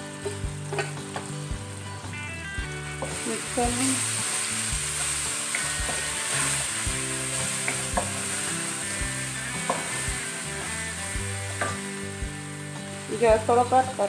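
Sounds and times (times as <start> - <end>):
vegetables sizzling in oil: 0.0 - 14.0.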